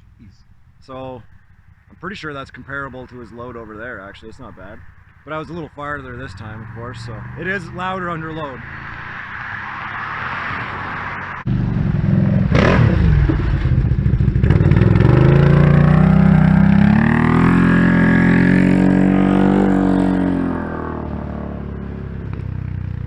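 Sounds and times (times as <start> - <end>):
atv engine accelerating: 1.3 - 23.0.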